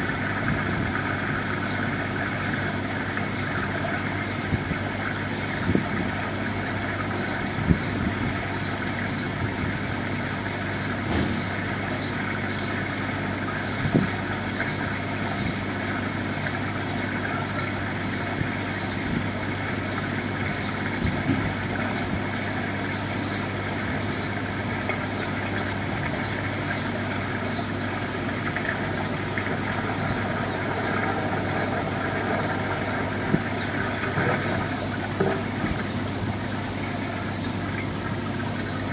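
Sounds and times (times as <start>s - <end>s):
engine idling with low hum: 0.0s - 38.9s
short knocks: 11.0s - 11.6s.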